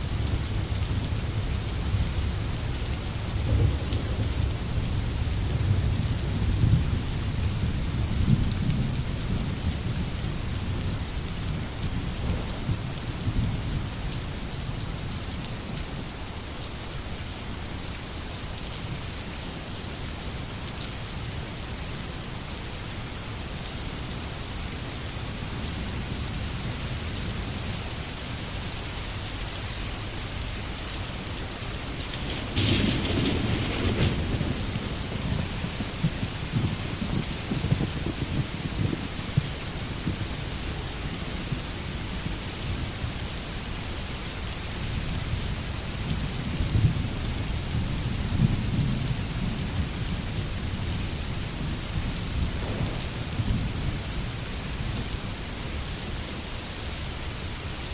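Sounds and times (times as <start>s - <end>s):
thunder rumbling: 0.0s - 14.1s, 30.1s - 42.9s, 45.0s - 55.9s
steady rain on forest: 0.0s - 57.9s.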